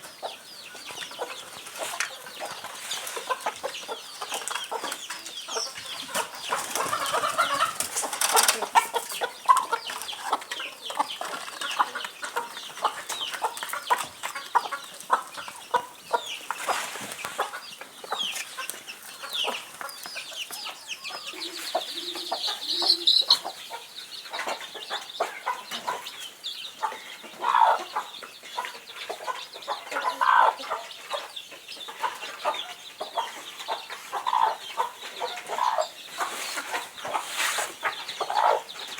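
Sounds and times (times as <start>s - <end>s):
chickens clucking and calling: 0.0s - 38.9s.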